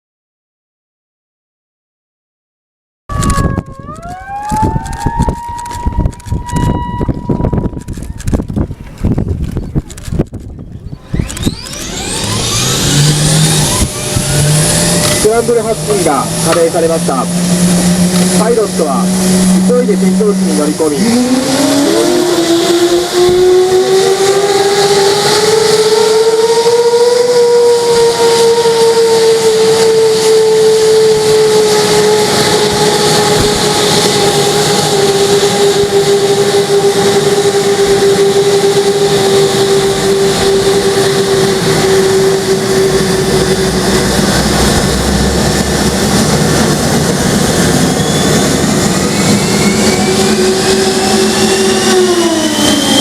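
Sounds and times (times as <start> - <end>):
low rumble: 3.1 - 25.6, 28.4 - 53.0
engine spooling up: 3.1 - 53.0
jet engine whine: 3.1 - 53.0.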